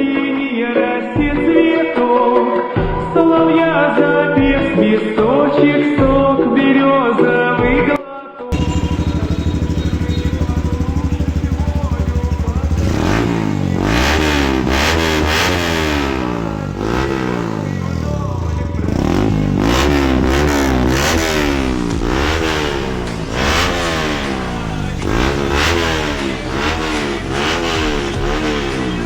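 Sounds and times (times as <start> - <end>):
motorcycle engine revving: 8.5 - 29.0.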